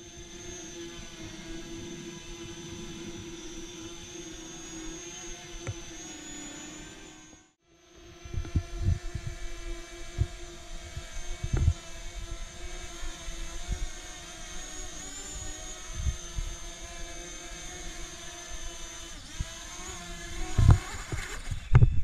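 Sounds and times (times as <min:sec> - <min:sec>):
drone propellers whining: 0:00.0 - 0:22.0
wind buffeting microphone: 0:08.3 - 0:12.5.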